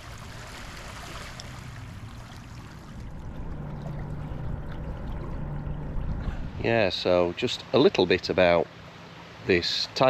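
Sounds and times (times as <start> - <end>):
low hum: 0.0 - 7.8
water lapping at the shore: 0.0 - 10.0.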